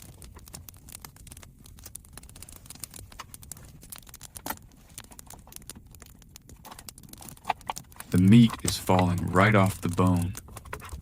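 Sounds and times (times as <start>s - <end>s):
meat crackling and popping on grill: 0.0s - 11.0s.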